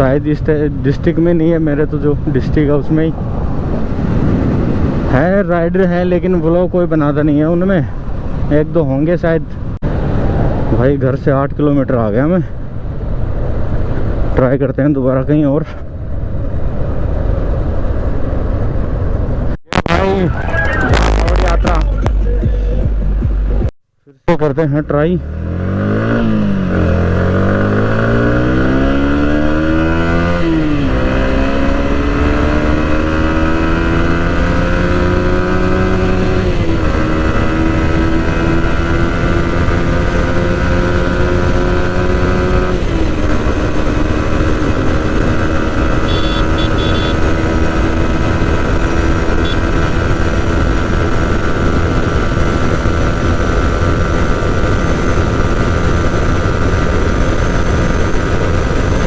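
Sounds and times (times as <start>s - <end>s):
wind noise on microphone: 2.1s - 5.7s, 9.5s - 11.0s
motorcycle engine accelerating: 25.2s - 59.0s.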